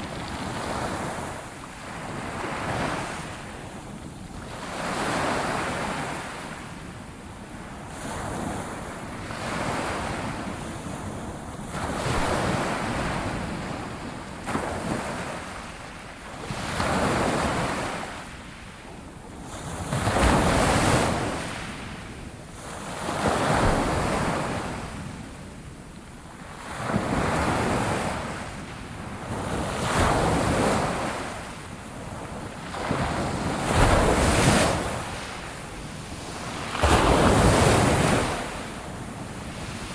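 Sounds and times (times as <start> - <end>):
sea waves breaking on shore: 26.4 - 39.9.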